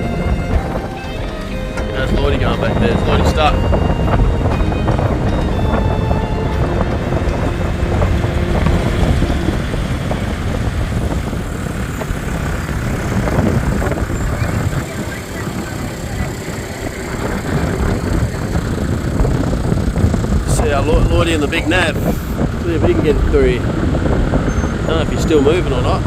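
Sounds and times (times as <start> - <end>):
vehicle engine running: 0.0 - 26.0
wind rumbling on microphone: 0.0 - 26.0.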